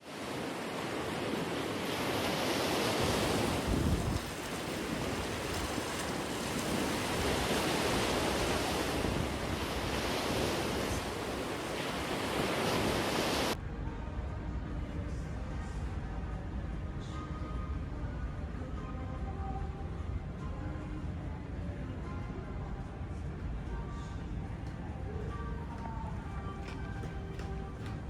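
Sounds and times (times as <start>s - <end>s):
ocean waves washing: 0.0s - 13.6s
wind buffeting microphone: 2.7s - 13.6s.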